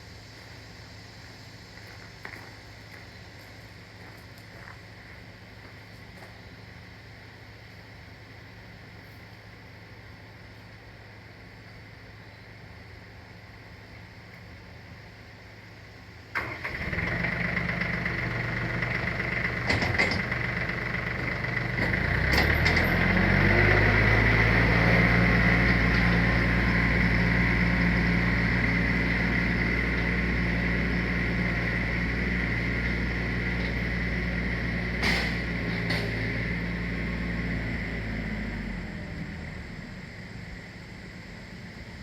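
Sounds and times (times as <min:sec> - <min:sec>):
small petrol engine running: 0:16.4 - 0:40.8.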